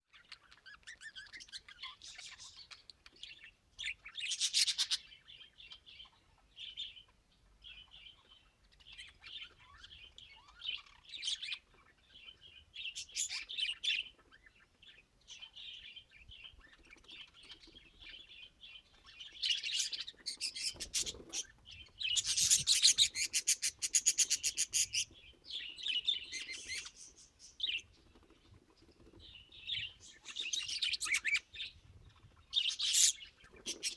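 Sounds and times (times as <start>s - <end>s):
budgerigars chirping and chattering: 0.1s - 33.9s
fast rattling bird call: 22.1s - 25.1s.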